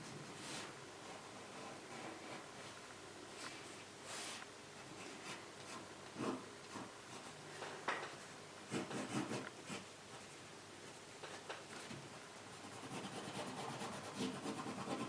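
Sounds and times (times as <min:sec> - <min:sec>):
pen nib scratching paper: 0:05.0 - 0:07.3, 0:08.7 - 0:09.8, 0:12.7 - 0:15.0.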